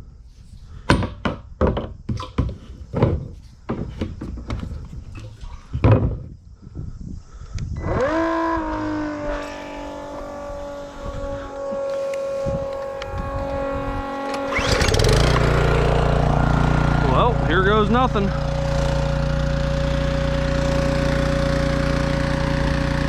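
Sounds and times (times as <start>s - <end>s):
equipment clunking and knocking: 0.9s - 5.2s, 5.8s - 6.3s
electric pump motor whine: 7.8s - 23.0s.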